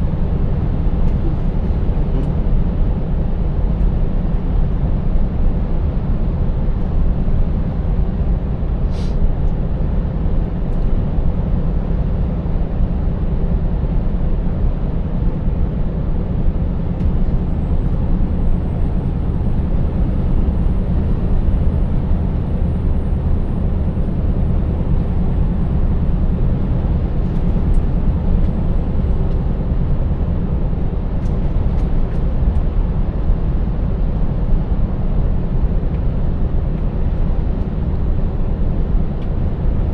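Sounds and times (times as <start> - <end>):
road noise: 15.1 - 39.9
truck diesel engine droning: 16.1 - 32.1.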